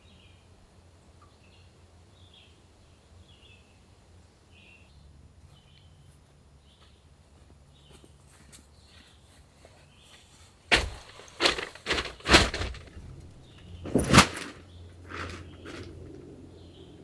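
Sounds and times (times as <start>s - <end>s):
low steady hum: 10.7s - 17.0s.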